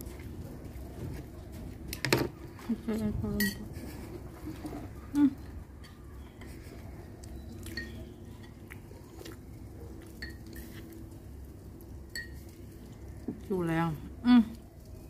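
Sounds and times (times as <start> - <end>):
faint background hum: 0.0 - 15.0
person chewing food: 4.1 - 11.8.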